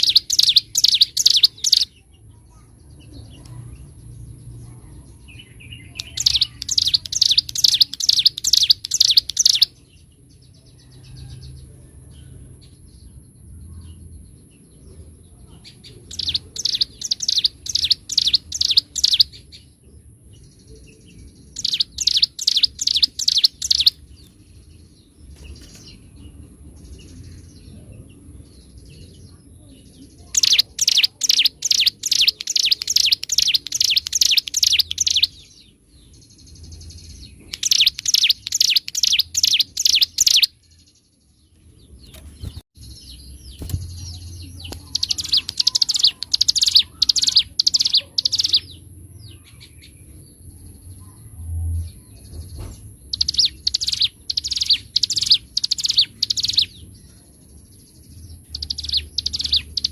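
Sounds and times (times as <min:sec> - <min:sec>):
bird singing sharp high notes: 0:00.0 - 0:01.9, 0:16.1 - 0:19.4, 0:21.6 - 0:24.0, 0:30.3 - 0:35.4, 0:37.5 - 0:40.6, 0:43.6 - 0:48.7.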